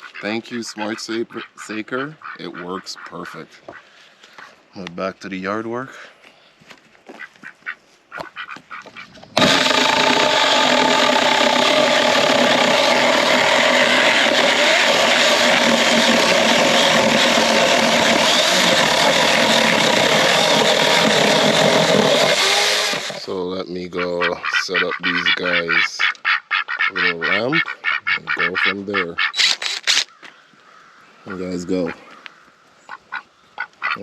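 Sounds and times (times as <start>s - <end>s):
electric chainsaw running: 9.4s - 23.3s.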